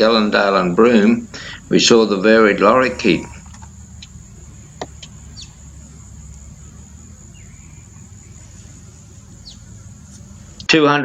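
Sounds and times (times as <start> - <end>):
high-pitched insect drone: 0.0 - 10.8
low outdoor hum: 0.0 - 11.0
high bird chirps: 2.8 - 10.7.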